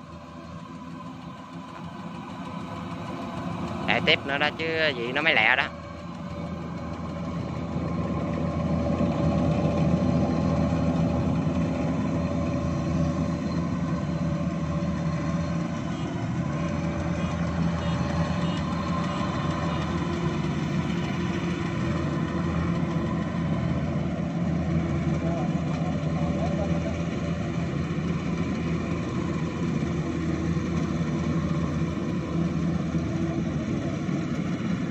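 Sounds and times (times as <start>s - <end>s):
combine harvester diesel engine: 0.0s - 34.9s.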